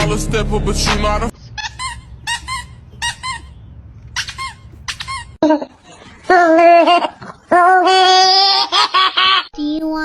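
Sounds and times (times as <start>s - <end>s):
high-pitched squeaks: 1.4s - 5.4s.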